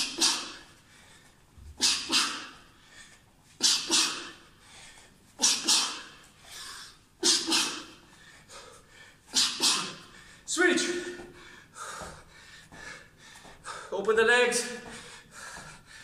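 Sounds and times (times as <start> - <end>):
man's hissing exhalations: 1.8 - 2.6.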